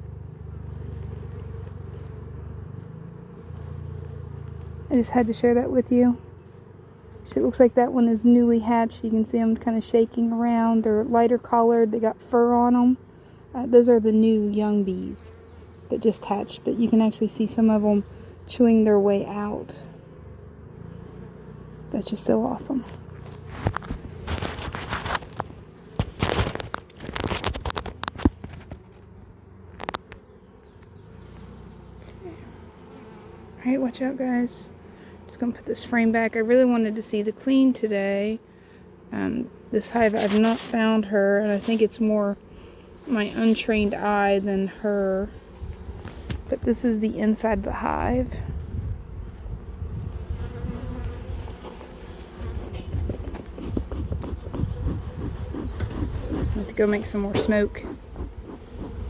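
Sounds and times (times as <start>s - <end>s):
honeybees buzzing: 0.0s - 59.0s
crackling handling noise: 23.2s - 30.2s.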